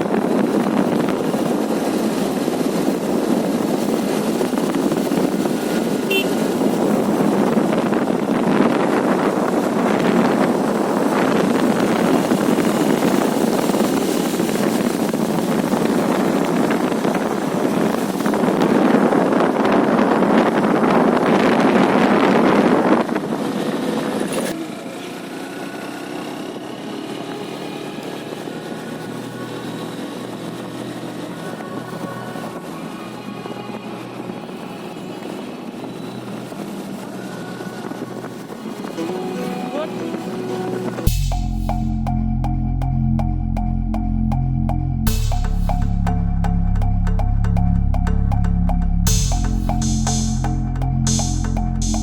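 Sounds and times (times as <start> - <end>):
motorcycle engine and road noise: 0.0 - 39.4
wind rushing over microphone: 0.0 - 39.4.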